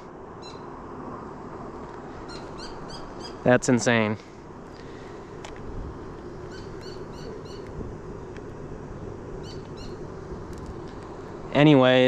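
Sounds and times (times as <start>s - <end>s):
bird chirping: 0.4s - 0.7s, 2.2s - 3.5s, 6.4s - 10.2s.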